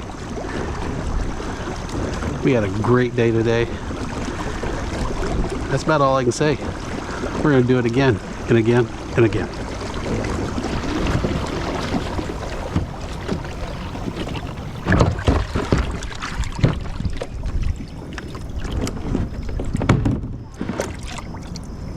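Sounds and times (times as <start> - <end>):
water washing along kayak hull: 0.0 - 21.9
knocks and clunks: 10.7 - 16.9.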